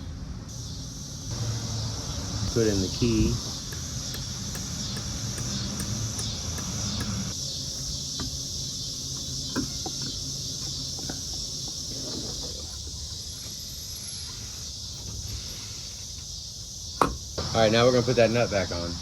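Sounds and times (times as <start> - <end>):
high-pitched insect chorus: 0.0 - 19.0
light clicks of metal parts: 3.4 - 7.4.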